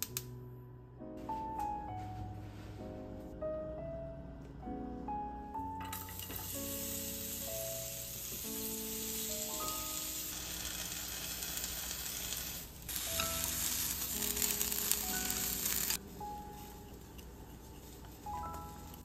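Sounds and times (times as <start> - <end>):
soft background music: 0.0 - 19.0
vegetables sizzling in frying pan: 6.2 - 16.0.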